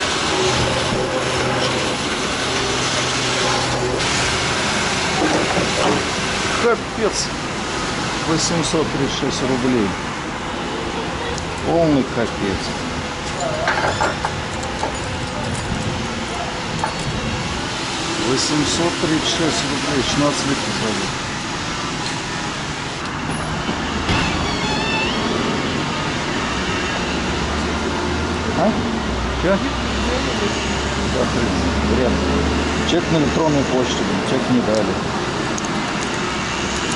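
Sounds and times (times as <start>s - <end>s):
dense rushing noise: 15.2s - 36.9s
short high squeak: 24.1s - 25.4s.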